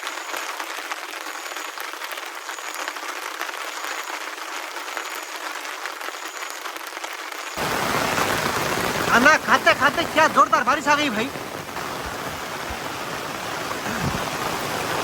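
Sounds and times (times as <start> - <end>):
heavy rain hissing: 7.5 - 15.0.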